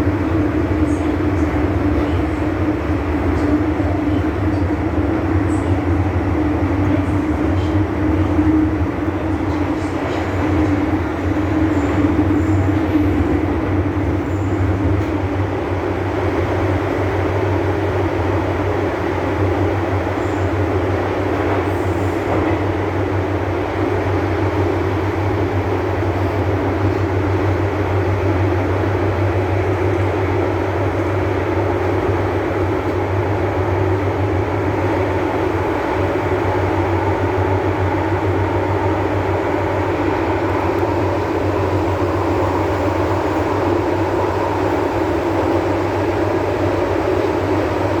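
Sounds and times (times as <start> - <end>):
metro train wheels rumbling on rail: 0.0 - 48.0.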